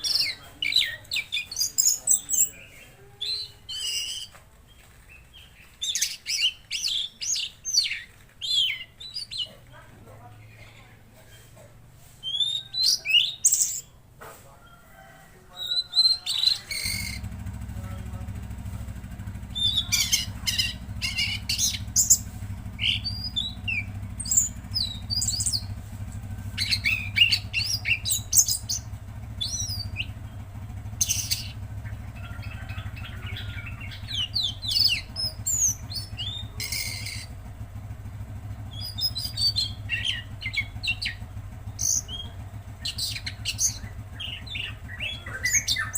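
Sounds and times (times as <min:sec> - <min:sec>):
songbird singing: 0:00.0 - 0:45.9.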